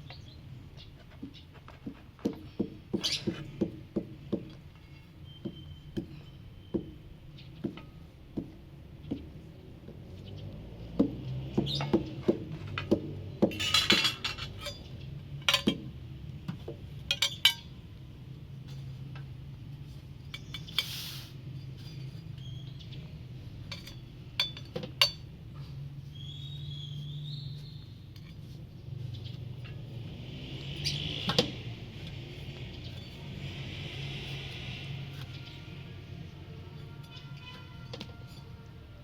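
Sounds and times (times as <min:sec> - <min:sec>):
dishes and utensils clinking: 0:13.5 - 0:15.8.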